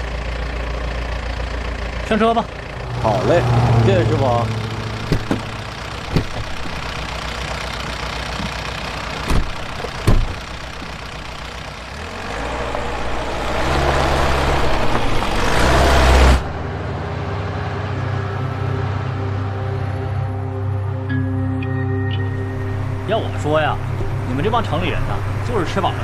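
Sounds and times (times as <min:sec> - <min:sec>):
vehicle engine idling and revving: 0:00.0 - 0:26.0
sharp knocks of doors shutting: 0:05.1 - 0:05.5, 0:06.1 - 0:06.8, 0:09.3 - 0:11.0.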